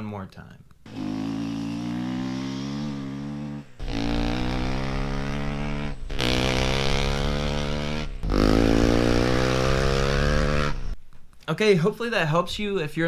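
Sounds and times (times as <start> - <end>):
dirt bike accelerating: 0.8 - 11.0.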